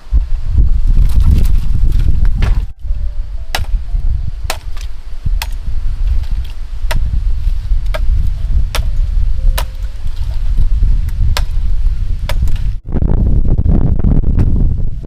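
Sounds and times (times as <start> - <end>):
steady low rumble: 0.0 - 15.0
hand tool chopping: 3.5 - 3.8, 4.5 - 10.6, 11.3 - 11.6, 12.3 - 12.7.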